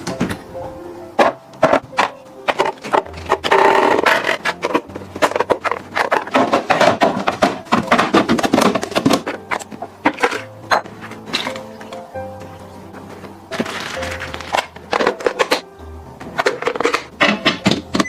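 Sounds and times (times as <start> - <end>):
food packages tapping and knocking: 1.2 - 18.0
packaging rustle: 13.5 - 15.6.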